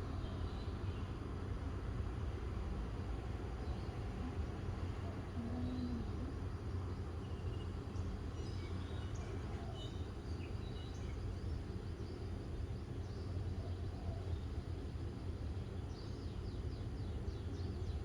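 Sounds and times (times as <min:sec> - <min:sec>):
small birds chirping: 0:03.6 - 0:06.4.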